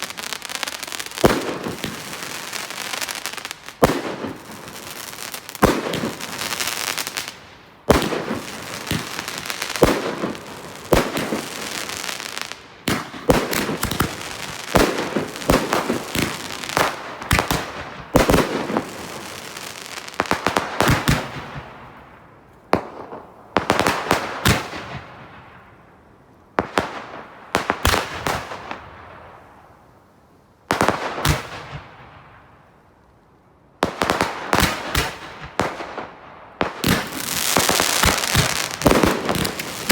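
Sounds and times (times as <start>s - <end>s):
fireworks bangs echoing: 0.0s - 22.1s, 33.8s - 39.9s.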